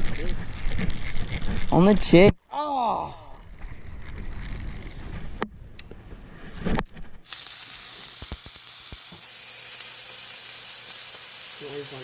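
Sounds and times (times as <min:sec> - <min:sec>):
steak sizzling in a pan: 0:07.2 - 0:12.0.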